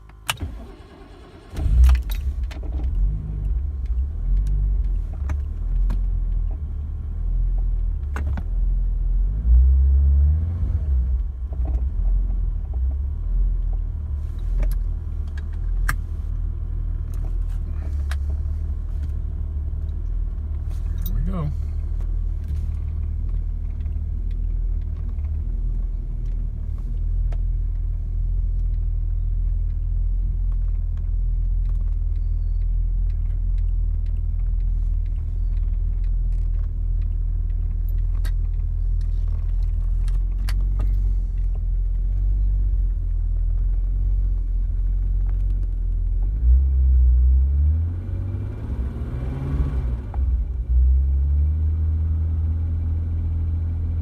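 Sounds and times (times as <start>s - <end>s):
engine revving: 9.2s - 12.0s, 46.4s - 54.0s
car engine idling: 11.0s - 46.4s.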